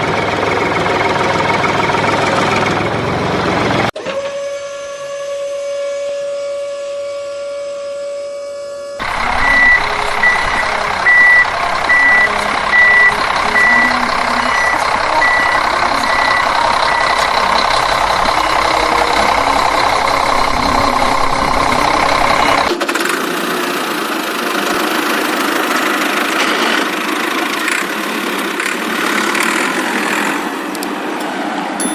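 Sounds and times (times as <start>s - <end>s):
truck engine running: 0.0s - 4.0s, 9.0s - 31.9s
truck reversing alarm beeping: 8.8s - 22.7s.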